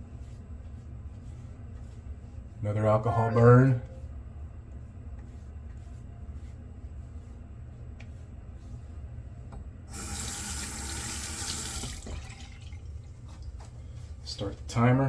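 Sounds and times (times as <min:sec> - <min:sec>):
steady low hum: 0:00.0 - 0:10.6
tap running into a sink: 0:10.0 - 0:12.7.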